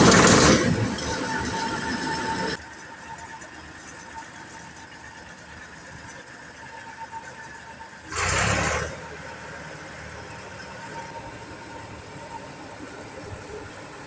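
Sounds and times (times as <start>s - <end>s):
combine engine idling: 0.0s - 2.6s, 10.2s - 14.0s
loud burst of noise: 0.0s - 2.6s, 8.1s - 9.1s.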